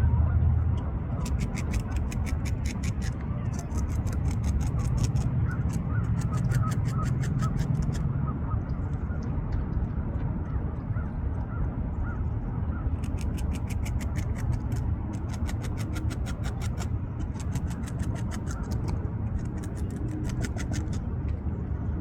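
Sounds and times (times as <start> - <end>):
steady low rumble: 0.0 - 22.0
beaver gnawing bark: 1.2 - 8.0, 13.0 - 21.1.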